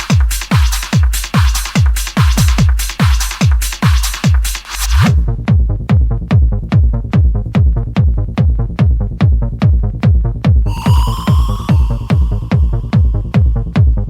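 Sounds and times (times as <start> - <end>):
kick drum: 0.0 - 14.0
pulsing bass: 5.1 - 14.0
high synth lead: 10.7 - 14.0.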